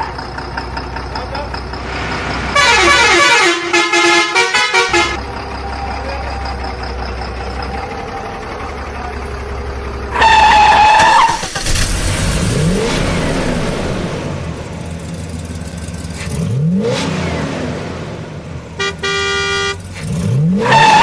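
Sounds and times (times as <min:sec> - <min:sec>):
engine hum: 0:00.0 - 0:21.0
engine revving: 0:01.2 - 0:21.0
vehicle horn honks: 0:02.6 - 0:05.2, 0:18.8 - 0:19.9.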